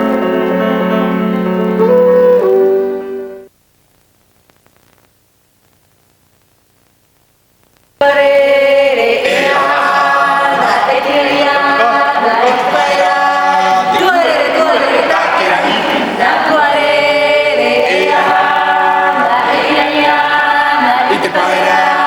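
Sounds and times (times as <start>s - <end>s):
instrumental music: 0.0s - 3.5s
choir singing chant-like song: 8.0s - 22.0s.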